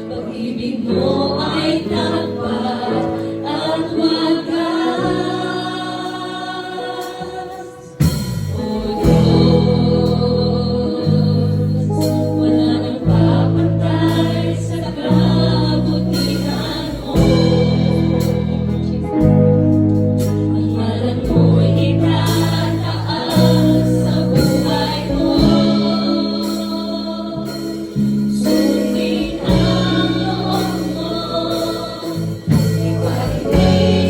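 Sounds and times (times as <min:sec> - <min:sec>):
gospel choir singing: 0:00.0 - 0:34.0
bass line: 0:08.0 - 0:34.0.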